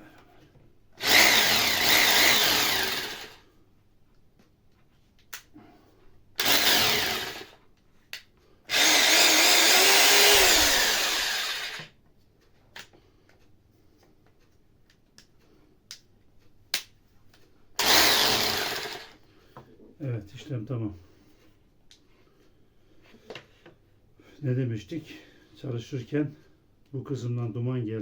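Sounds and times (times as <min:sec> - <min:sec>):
hammer drill running: 0:01.0 - 0:03.4, 0:06.4 - 0:07.6, 0:08.7 - 0:11.9, 0:17.8 - 0:19.2.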